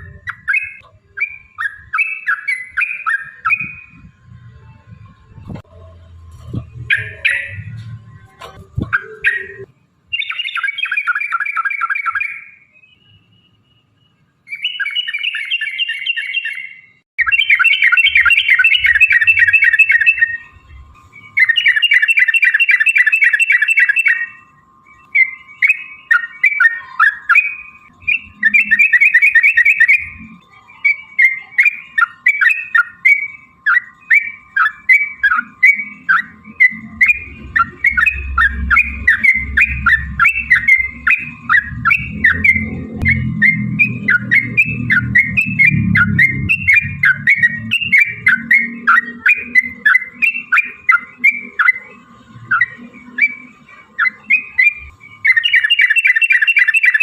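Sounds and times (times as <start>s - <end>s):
bird choppy chirping: 0.0s - 4.1s, 6.3s - 12.7s, 14.5s - 57.0s
bird rolling trills: 17.2s - 51.8s.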